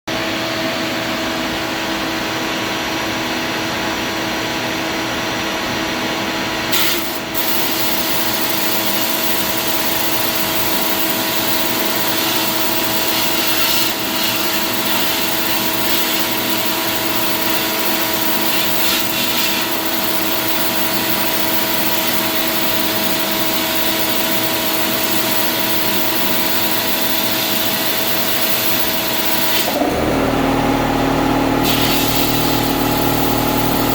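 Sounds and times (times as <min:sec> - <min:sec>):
blast cabinet air hiss: 0:31.6 - 0:33.9.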